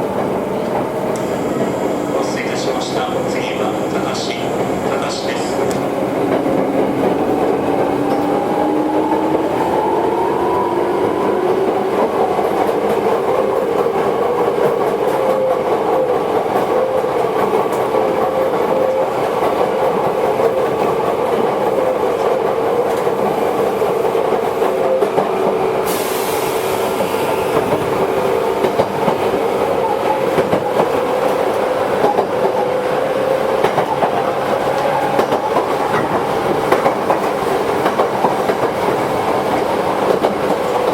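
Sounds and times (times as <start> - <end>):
high hiss: 25.8 - 27.7.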